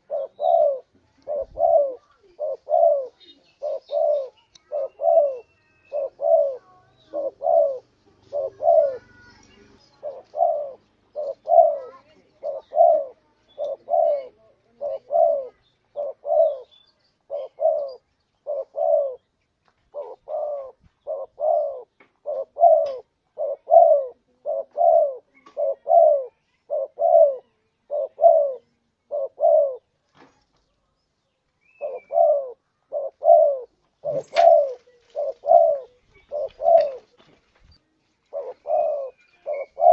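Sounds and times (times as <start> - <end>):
dove cooing: 0.0 - 19.3, 19.9 - 29.9, 31.7 - 37.2, 38.2 - 39.9.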